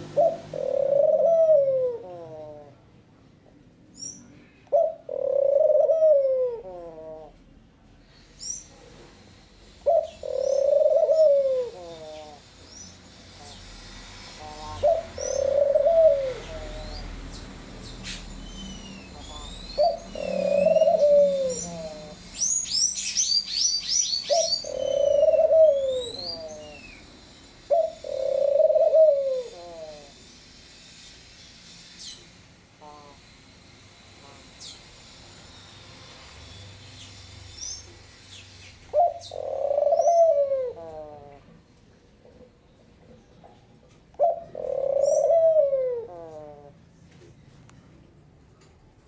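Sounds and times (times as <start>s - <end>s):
pigeon cooing: 0.0s - 2.9s, 4.7s - 7.5s, 9.8s - 12.4s, 14.4s - 17.2s, 18.1s - 22.6s, 24.2s - 27.0s, 27.7s - 30.2s, 38.9s - 41.6s, 43.4s - 46.9s
small birds chirping: 14.5s - 30.1s.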